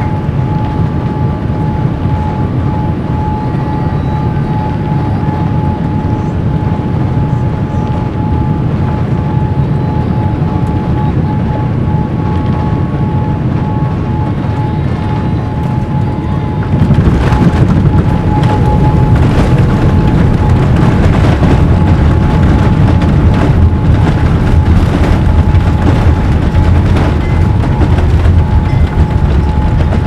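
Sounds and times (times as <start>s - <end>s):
airliner cabin rumble: 0.0s - 30.0s
steady hum tone: 0.0s - 30.0s.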